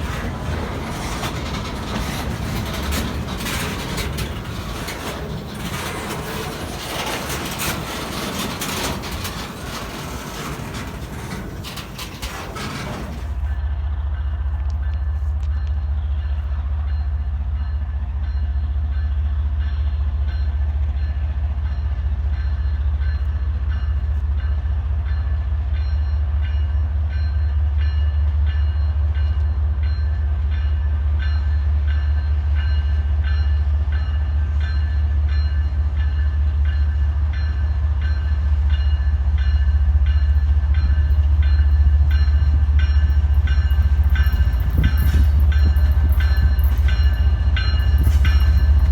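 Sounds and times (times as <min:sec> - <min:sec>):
wheels clicking over rail joints: 0:00.0 - 0:13.6, 0:36.6 - 0:48.9
train rumbling past: 0:00.0 - 0:48.9.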